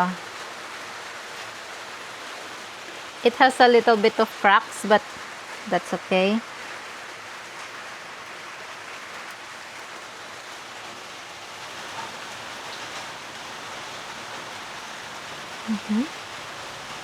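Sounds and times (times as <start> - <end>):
steady hiss: 0.0 - 17.0
short voice sound: 15.7 - 16.1.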